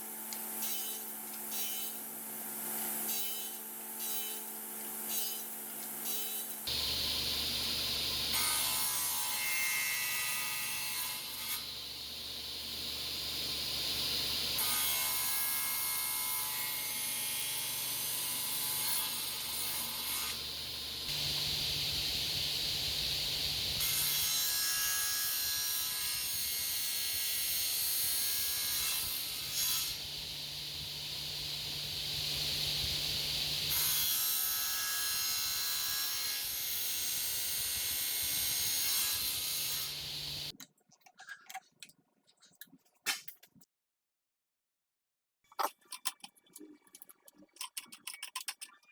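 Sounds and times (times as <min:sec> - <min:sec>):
power tool working wood: 0:33.7 - 0:40.5.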